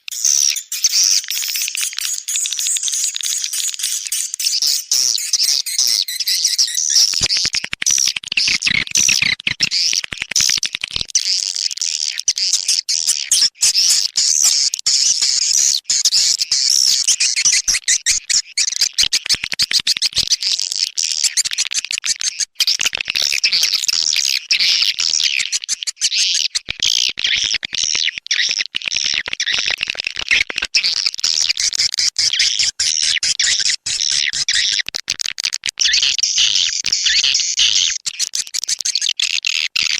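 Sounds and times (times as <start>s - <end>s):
swiftlet chirps and twitters: 0.1s - 8.1s, 11.2s - 19.8s.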